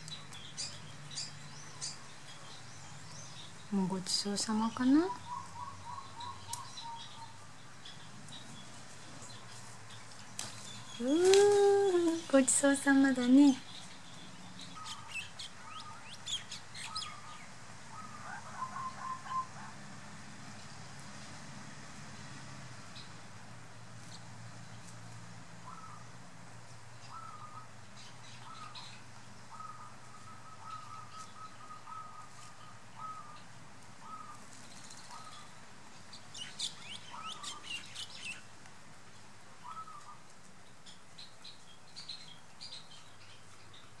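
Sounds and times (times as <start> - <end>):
small birds chirping: 0.0 - 19.8, 22.0 - 44.0
bird calling clear notes: 3.3 - 7.6, 14.6 - 19.7, 25.6 - 26.1, 27.0 - 35.6, 39.6 - 40.3.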